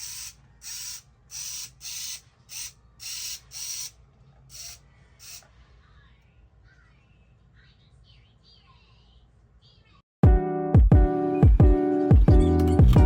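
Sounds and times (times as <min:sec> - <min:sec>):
toy car motor whirring: 0:00.0 - 0:05.5.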